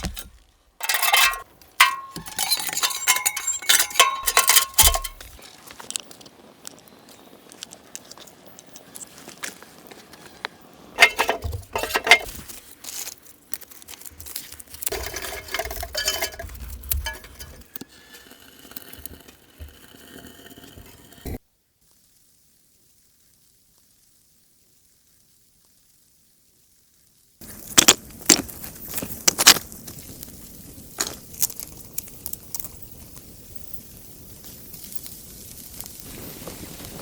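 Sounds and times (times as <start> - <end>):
knocks and rustles: 0.0 - 5.4, 11.0 - 12.7, 14.2 - 17.7
dishes clinking: 0.8 - 5.4, 11.0 - 12.3, 14.9 - 17.7.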